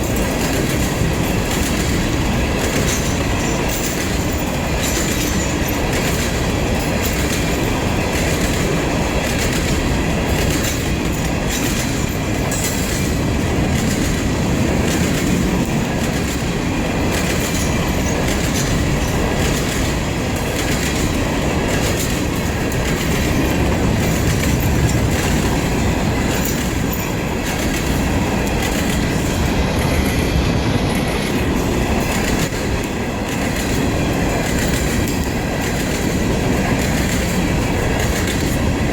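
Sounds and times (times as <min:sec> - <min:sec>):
freight train rolling past: 0:00.0 - 0:38.9
wheels clicking over rail joints: 0:00.0 - 0:38.9.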